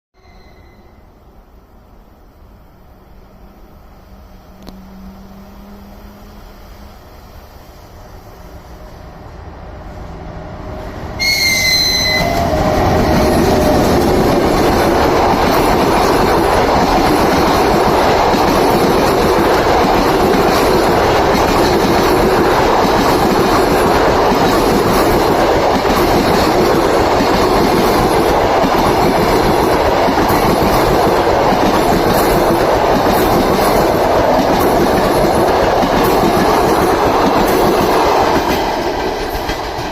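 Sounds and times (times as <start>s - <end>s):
passenger train passing: 0.2s - 39.9s
train wheels running over rails: 10.1s - 39.9s.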